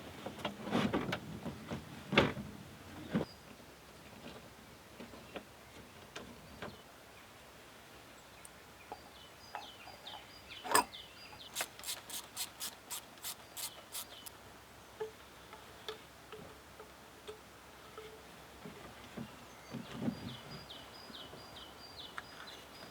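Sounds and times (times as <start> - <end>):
ratchet wrench clicking: 11.6 - 14.3.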